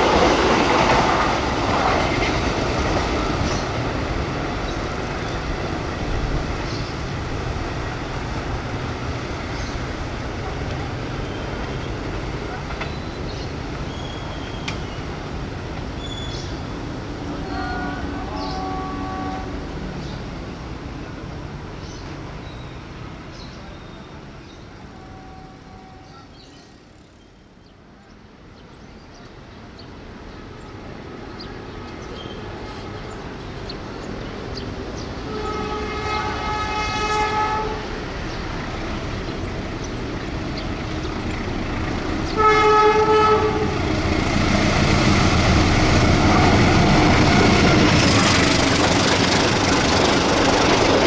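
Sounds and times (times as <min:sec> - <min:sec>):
diesel locomotive engine and wheels: 0:00.0 - 0:51.0
train horn blasts: 0:17.4 - 0:19.7, 0:24.9 - 0:26.3, 0:35.2 - 0:38.0, 0:42.3 - 0:43.8.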